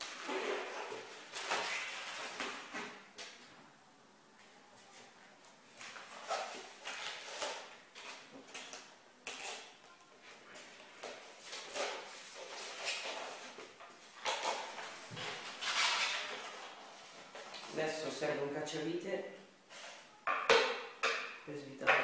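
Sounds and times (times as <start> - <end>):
packaging rustling and scraping: 0.0 - 3.0, 5.7 - 9.7, 10.3 - 17.8.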